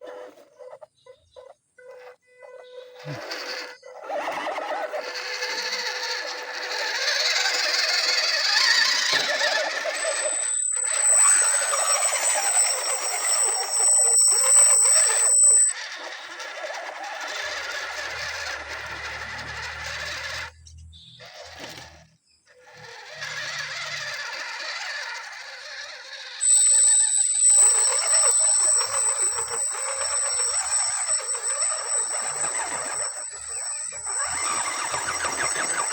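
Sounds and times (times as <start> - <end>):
toy car electric motor running: 0.0 - 35.9
thin high whine: 5.5 - 16.2, 26.4 - 35.9.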